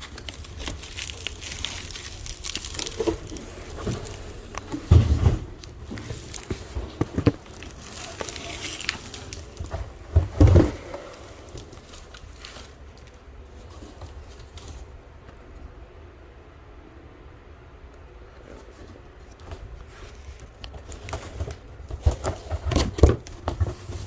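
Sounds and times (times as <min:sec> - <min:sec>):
cardboard box being handled: 0:00.0 - 0:14.9
heavy thumps: 0:02.9 - 0:12.1.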